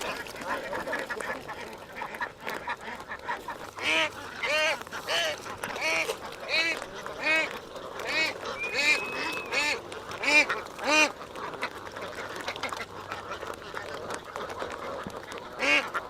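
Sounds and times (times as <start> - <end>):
ducks quacking: 0.0 - 16.0
thin whistling tone: 8.5 - 9.6.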